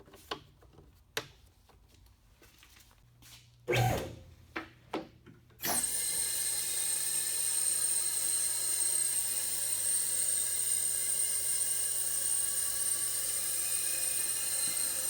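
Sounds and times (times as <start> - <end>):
machine whining: 5.6 - 15.0.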